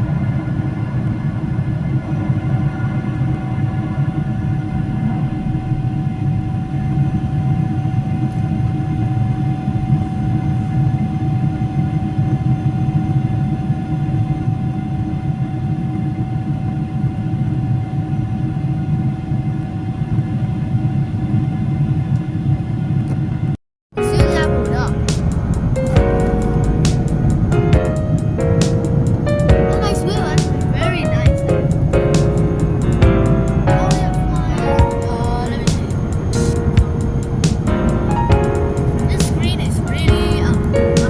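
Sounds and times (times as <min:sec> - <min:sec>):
airplane cabin rumble: 0:24.0 - 0:41.0.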